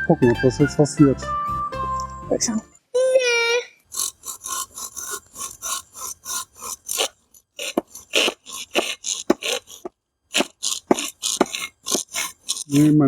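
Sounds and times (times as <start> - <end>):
hand saw rasping through branch: 3.9 - 13.0.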